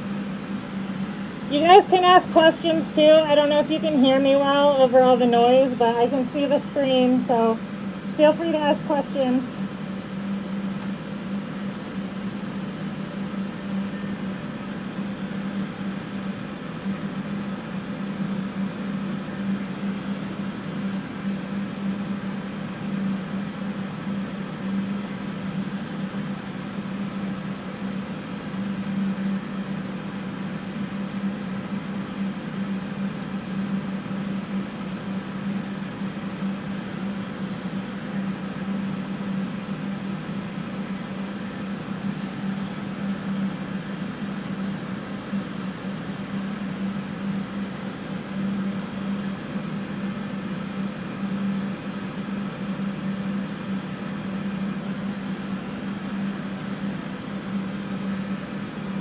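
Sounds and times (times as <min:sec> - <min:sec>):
electric fans running: 0:00.0 - 0:59.0.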